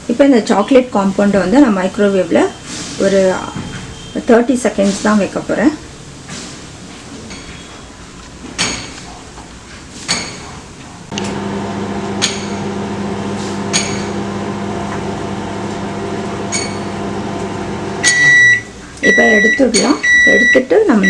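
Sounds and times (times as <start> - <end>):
microwave oven humming: 11.1 - 20.5.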